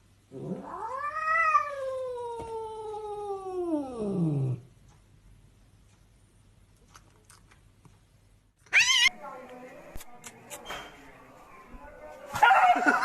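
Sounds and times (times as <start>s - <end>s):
cat yowling: 8.7s - 9.1s.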